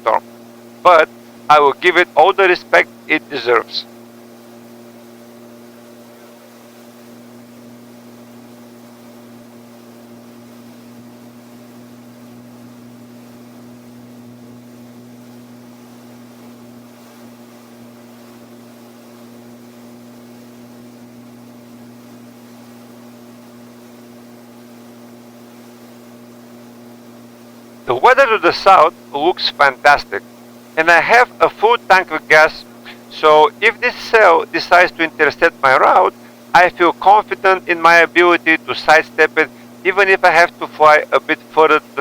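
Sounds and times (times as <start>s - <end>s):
gyroplane engine droning: 0.0s - 6.6s, 27.2s - 42.0s.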